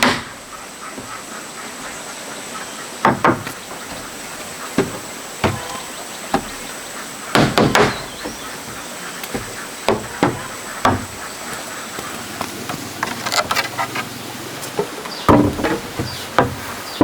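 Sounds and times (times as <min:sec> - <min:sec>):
hammer striking wood: 0:00.0 - 0:00.5, 0:03.0 - 0:04.0, 0:04.8 - 0:06.6, 0:07.3 - 0:08.4, 0:09.3 - 0:11.2, 0:14.8 - 0:16.7.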